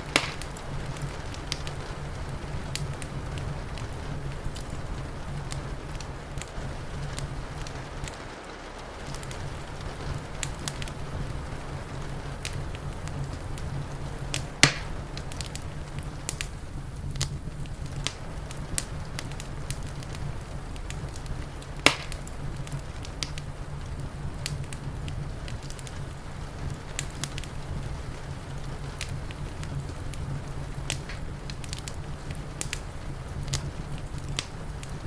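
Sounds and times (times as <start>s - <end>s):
loud sharp pops: 0.0s - 11.7s, 12.4s - 16.6s, 17.2s - 26.1s
low rumble: 0.0s - 35.0s
wood fire crackling: 0.0s - 35.0s.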